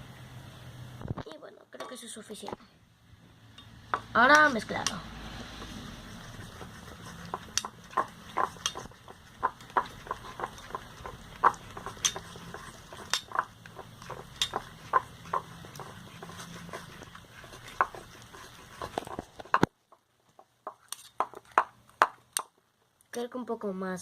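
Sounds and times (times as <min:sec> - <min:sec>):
utensil scraping container sides: 0:04.0 - 0:19.7, 0:20.7 - 0:21.7.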